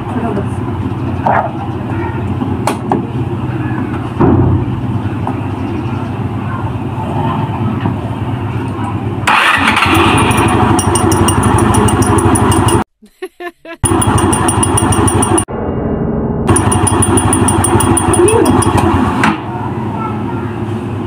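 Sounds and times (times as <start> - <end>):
scooter engine revving: 9.2 - 12.8, 13.8 - 15.5, 16.5 - 19.2
fast even ticking: 10.4 - 12.8, 13.8 - 15.5, 16.5 - 18.8.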